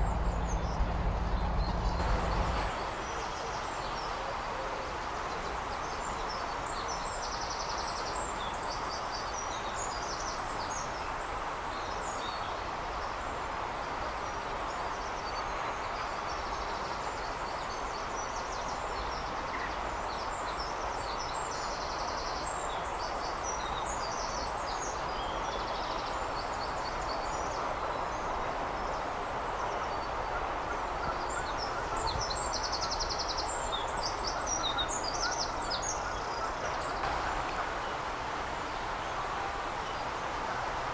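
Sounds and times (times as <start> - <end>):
distant background hum: 0.0 - 4.2, 35.2 - 40.9
songbirds chirping: 0.0 - 40.9.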